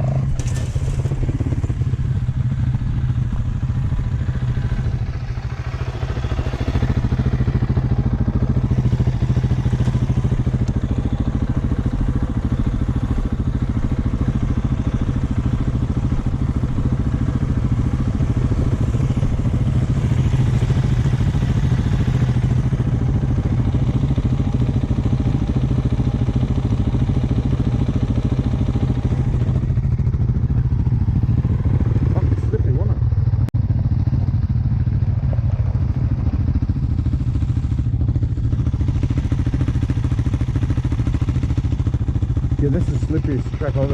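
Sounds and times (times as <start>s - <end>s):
dirt bike engine running: 0.0s - 43.9s.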